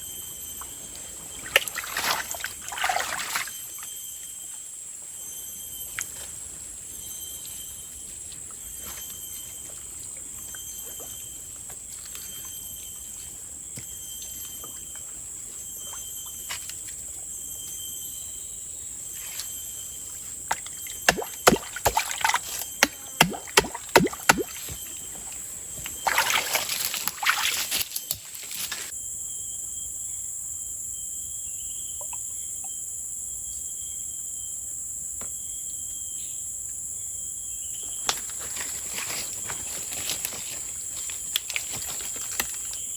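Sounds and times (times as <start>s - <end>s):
insects buzzing: 0.0s - 42.9s
water sloshing and splashing: 1.3s - 3.9s, 20.5s - 28.5s.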